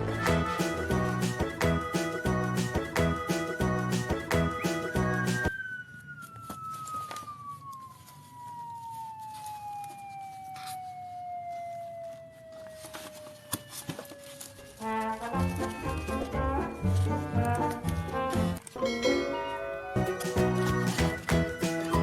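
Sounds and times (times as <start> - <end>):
music: 0.0 - 5.5, 15.1 - 22.0
falling whistle-like tone: 0.5 - 11.0, 15.1 - 17.2.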